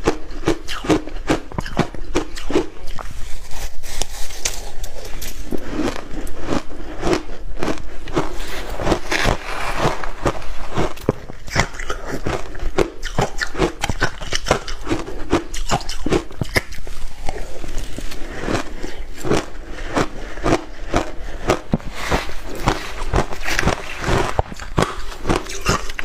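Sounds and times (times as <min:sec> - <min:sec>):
crushed ice being chewed: 0:00.0 - 0:26.0.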